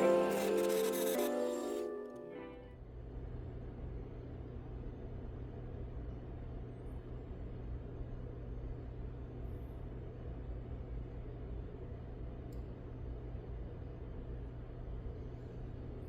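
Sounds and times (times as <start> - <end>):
rotary tool grinding: 0.0 - 1.8.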